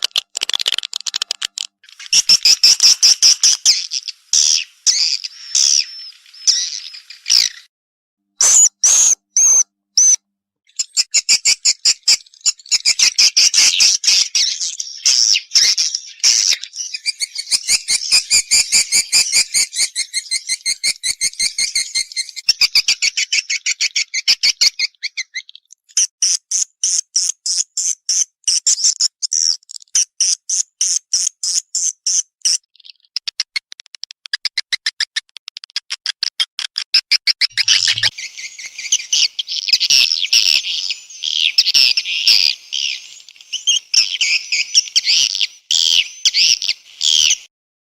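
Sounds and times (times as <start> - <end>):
swiftlet chirps and twittering: 1.8 - 7.7, 8.4 - 25.4, 37.2 - 47.4.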